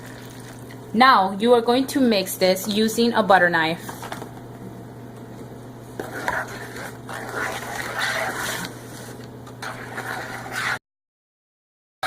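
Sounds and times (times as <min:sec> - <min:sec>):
knife scraping wet plaster: 0:06.0 - 0:10.8.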